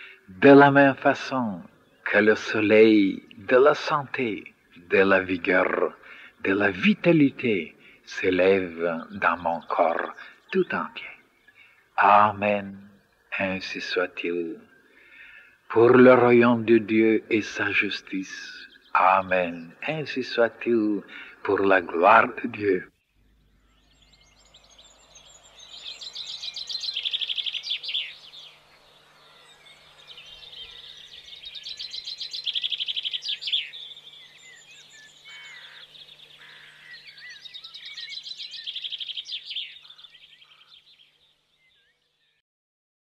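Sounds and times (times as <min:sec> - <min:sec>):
songbird singing: 0:00.0 - 0:42.4.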